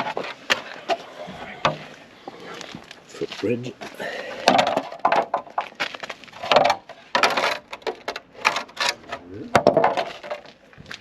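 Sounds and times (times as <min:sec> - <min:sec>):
parts rustling scraping and clicking: 0:00.0 - 0:03.1, 0:04.4 - 0:11.0.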